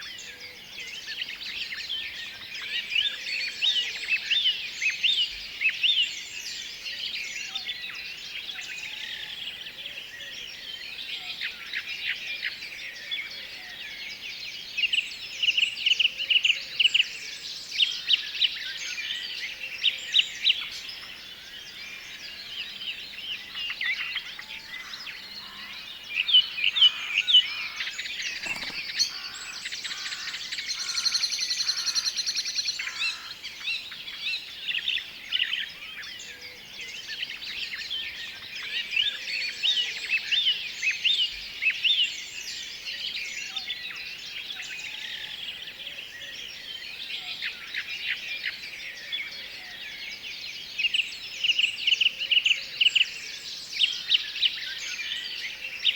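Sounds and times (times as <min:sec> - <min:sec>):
songbirds chirping and whistling: 0:00.0 - 0:55.9
fast bird trill: 0:28.3 - 0:32.0.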